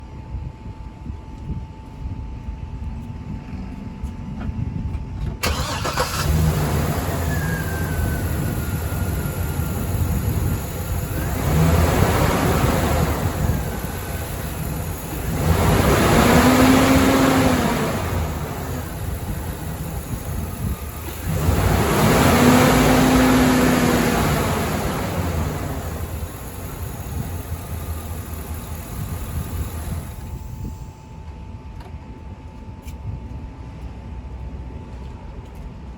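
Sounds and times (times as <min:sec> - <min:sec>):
engine revving: 0:05.4 - 0:30.4
engine cranking and starting: 0:05.4 - 0:30.7.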